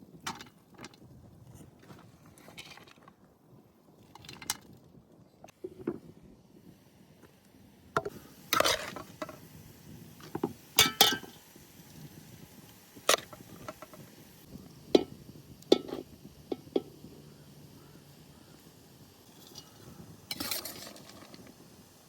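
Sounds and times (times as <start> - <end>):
dishes and utensils clinking: 10.8 - 11.3, 15.7 - 16.9.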